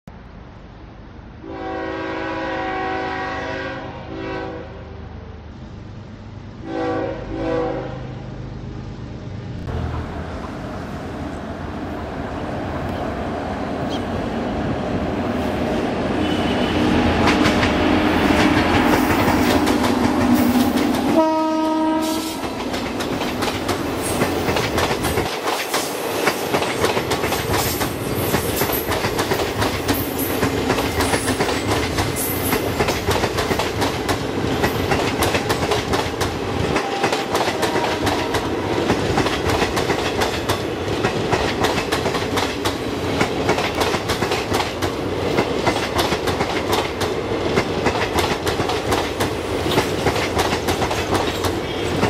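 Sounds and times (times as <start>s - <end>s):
train rumble: 0.2s - 52.0s
locomotive horn blasts: 1.4s - 5.0s, 6.6s - 8.1s, 16.2s - 17.1s, 21.1s - 22.5s, 36.8s - 38.5s
wheels clacking over rail joints: 22.1s - 52.0s.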